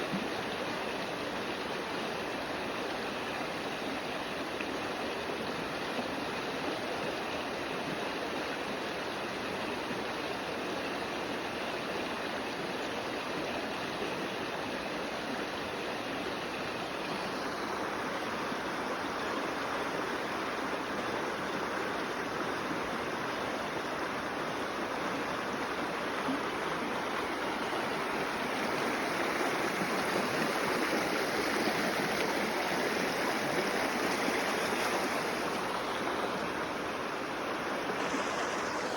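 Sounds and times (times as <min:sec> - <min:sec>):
creek water running: 0:00.0 - 0:38.9.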